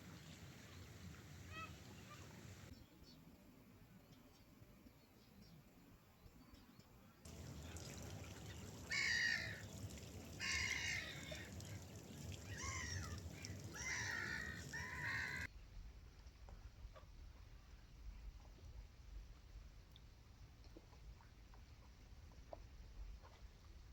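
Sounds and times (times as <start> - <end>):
gulls calling: 0.0 - 2.7, 7.3 - 15.5
low background rush: 7.3 - 15.5.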